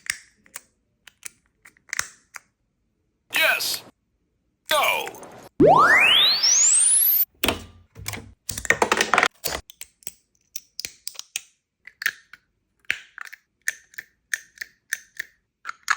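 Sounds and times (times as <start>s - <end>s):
rising swooping tone: 5.2s - 7.2s.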